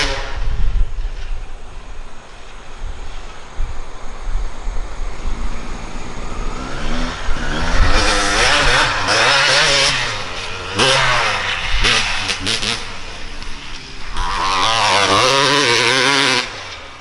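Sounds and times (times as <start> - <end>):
dirt bike engine revving: 0.0 - 1.3, 5.0 - 17.0.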